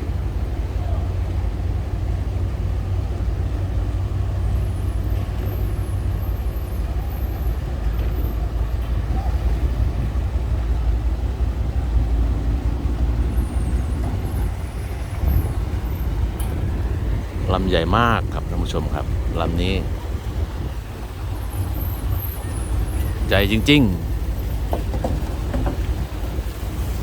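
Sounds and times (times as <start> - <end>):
tugboat engine rumbling: 0.0 - 27.0.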